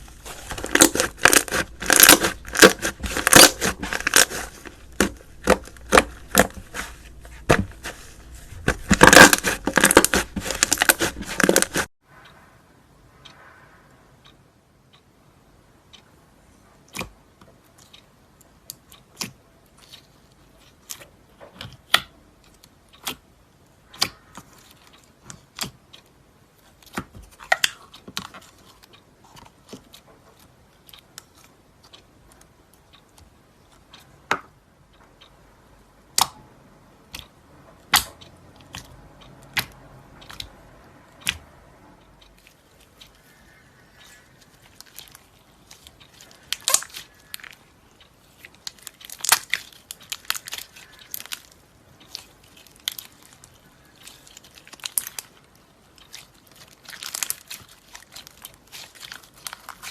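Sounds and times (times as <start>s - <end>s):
slime popping and crackling: 0.0s - 11.9s, 44.6s - 47.6s, 48.6s - 55.4s, 56.0s - 59.9s.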